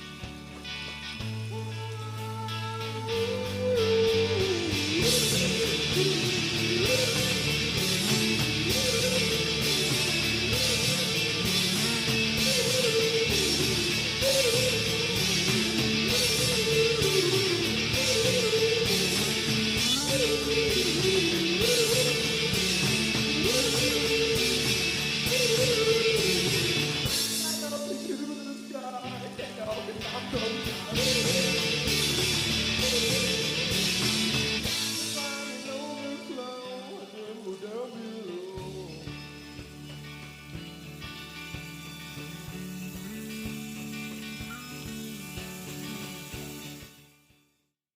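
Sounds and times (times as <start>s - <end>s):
indie rock music: 0.0s - 47.4s.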